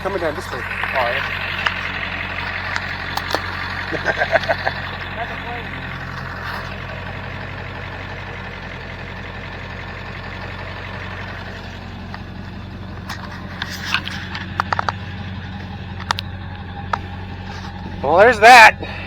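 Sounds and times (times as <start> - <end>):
truck engine idling: 0.0 - 19.0
sharp clicks and knocks: 1.2 - 3.7, 12.0 - 18.0.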